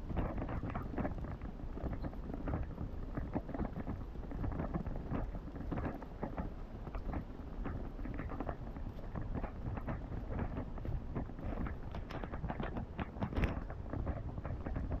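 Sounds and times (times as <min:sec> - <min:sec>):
low rumble on microphone: 0:00.0 - 0:15.0.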